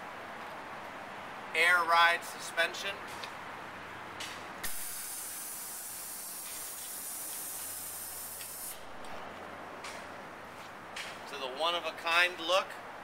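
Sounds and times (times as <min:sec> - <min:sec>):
compressed air hissing: 0:04.6 - 0:08.9.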